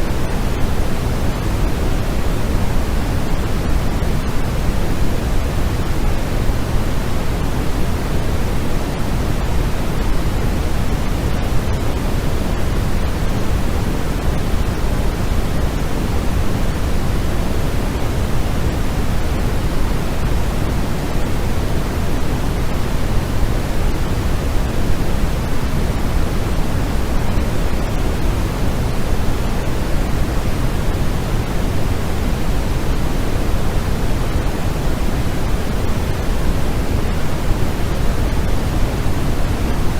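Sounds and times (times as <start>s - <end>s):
steady low-weighted noise: 0.0s - 39.9s.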